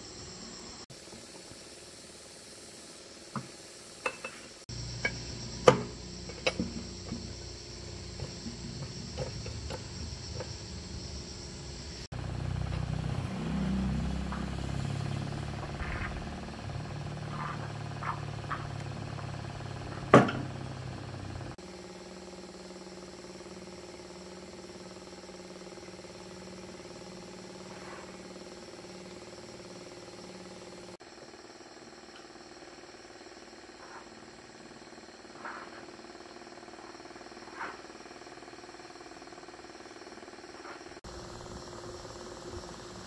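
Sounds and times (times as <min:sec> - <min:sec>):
metal tools knocking on metal: 0:04.0 - 0:07.3.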